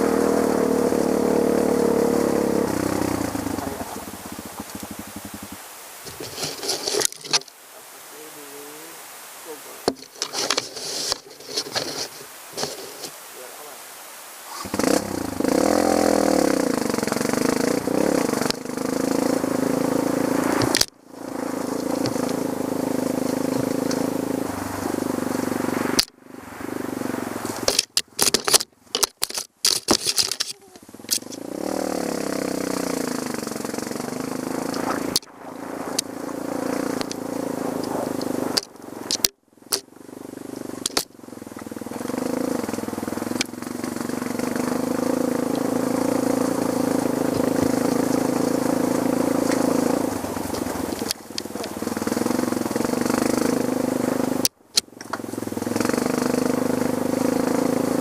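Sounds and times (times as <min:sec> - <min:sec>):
motorcycle engine under load: 0:00.0 - 0:07.6, 0:09.8 - 0:13.2, 0:14.5 - 0:58.0
clicks and rattles: 0:27.7 - 0:31.4.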